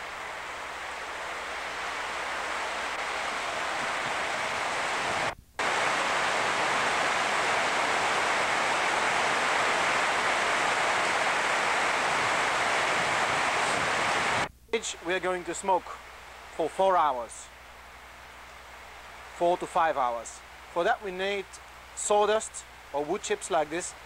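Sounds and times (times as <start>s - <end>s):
heavy rain falling: 0.0s - 15.5s.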